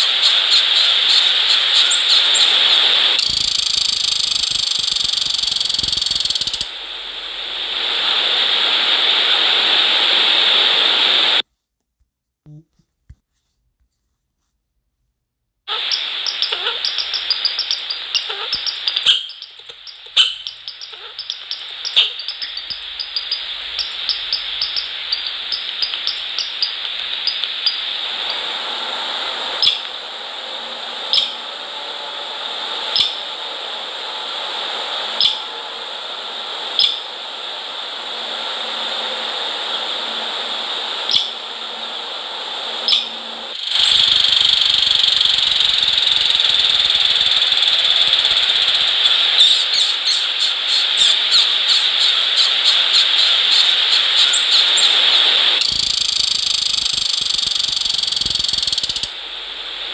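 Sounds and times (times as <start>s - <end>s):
steady hiss: 0.0s - 11.4s, 15.7s - 59.9s
small birds ticking: 3.2s - 6.7s, 15.9s - 27.8s, 43.6s - 48.9s, 55.6s - 59.1s.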